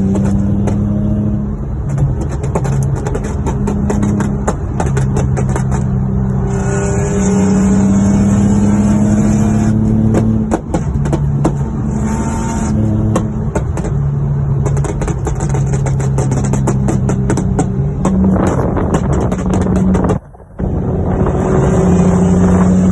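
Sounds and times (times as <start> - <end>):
sharp clicks and knocks: 0.0 - 1.0, 1.6 - 6.4, 9.8 - 11.8, 12.6 - 20.7
car engine accelerating: 0.0 - 22.9.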